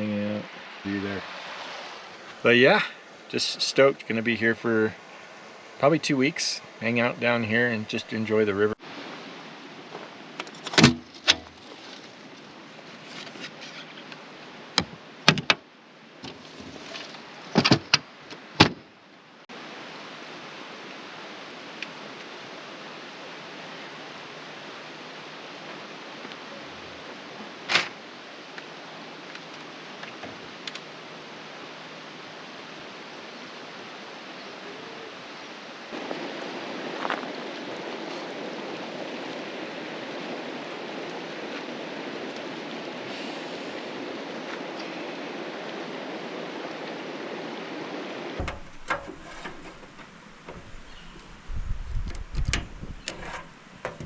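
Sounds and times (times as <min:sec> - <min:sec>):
river water rushing: 0:00.0 - 0:16.3, 0:17.2 - 0:51.4
sharp knocks and clicks: 0:48.4 - 0:50.8.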